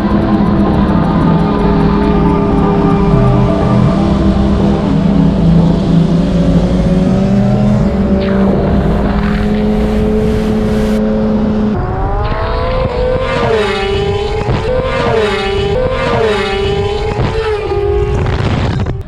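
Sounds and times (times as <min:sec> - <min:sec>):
motorcycle engines idling: 0:00.0 - 0:11.6
motorcycle accelerating hard: 0:00.0 - 0:19.0.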